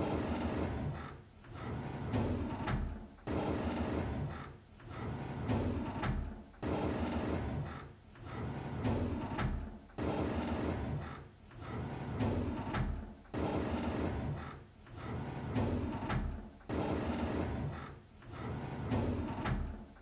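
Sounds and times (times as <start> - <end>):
drawer runners sliding open: 13.8 - 19.8.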